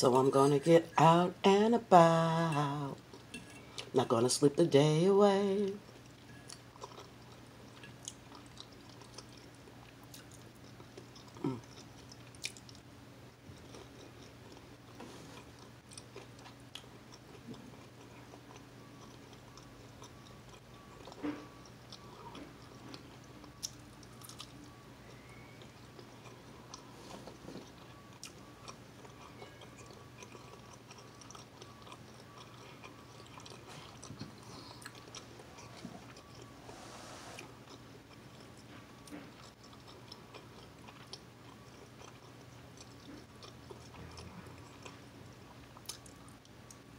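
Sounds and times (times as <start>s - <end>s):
faint low hum: 0.0s - 46.9s
close-up chewing and biting: 13.5s - 36.5s, 37.6s - 46.8s.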